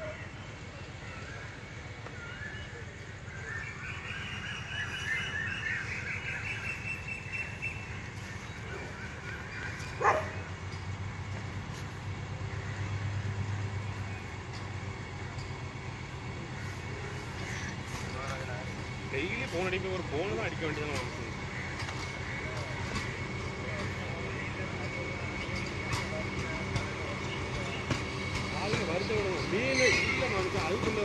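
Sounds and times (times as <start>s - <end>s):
electric train humming: 0.0s - 31.0s
sharp rising squeak: 29.5s - 30.5s.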